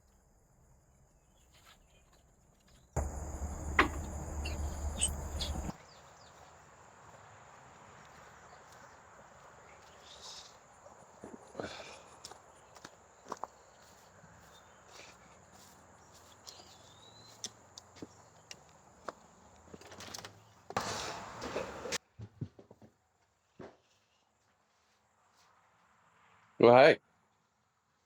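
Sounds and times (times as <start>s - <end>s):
insects buzzing: 3.0s - 5.8s.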